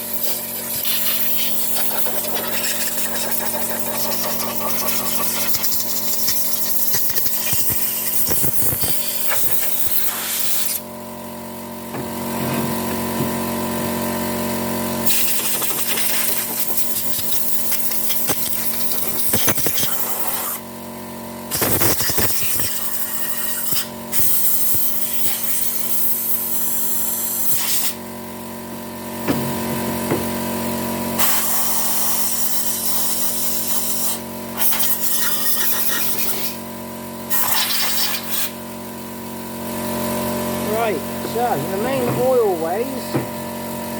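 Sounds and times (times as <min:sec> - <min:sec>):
air compressor humming: 0:00.0 - 0:43.9
compressed air blow gun hissing: 0:05.3 - 0:10.8.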